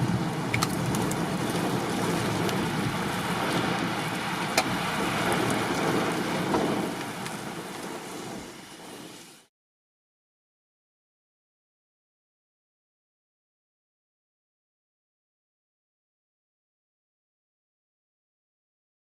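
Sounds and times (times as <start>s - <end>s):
heavy rain: 0.0s - 9.5s.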